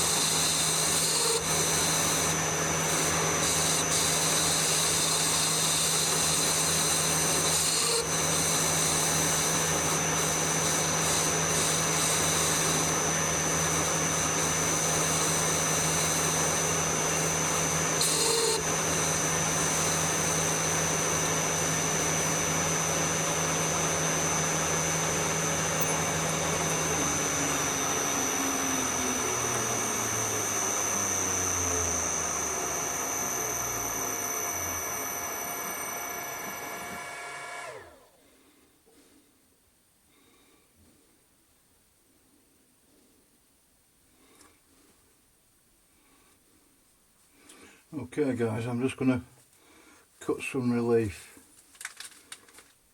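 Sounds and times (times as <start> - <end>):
lathe motor humming and whining: 0.0 - 38.1.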